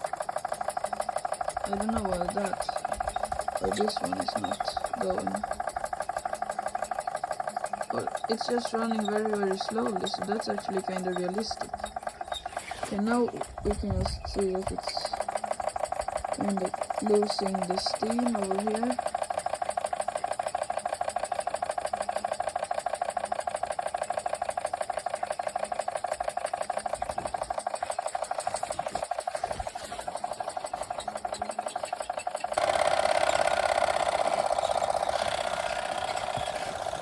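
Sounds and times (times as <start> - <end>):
toy steam engine chuffing: 0.0 - 37.0.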